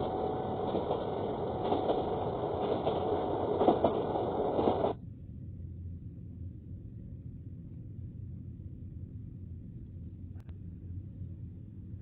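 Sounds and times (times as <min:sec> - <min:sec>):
train rumbling on track: 0:00.0 - 0:05.0
train wheels clacking: 0:00.0 - 0:05.0
faint low hum: 0:04.9 - 0:12.0.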